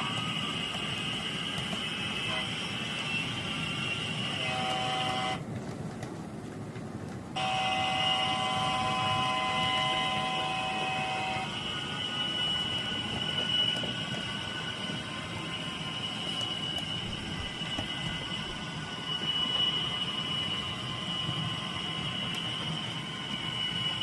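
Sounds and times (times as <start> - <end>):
model locomotive horn chord: 1.9 - 5.4, 7.4 - 13.8.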